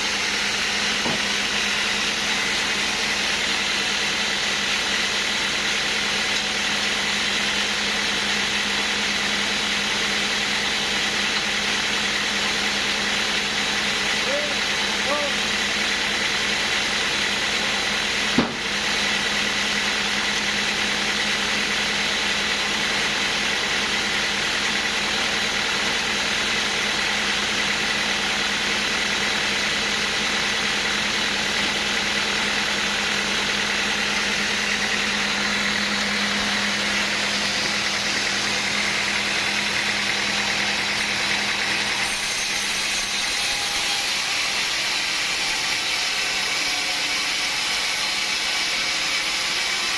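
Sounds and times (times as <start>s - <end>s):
machinery humming: 27.0s - 45.7s.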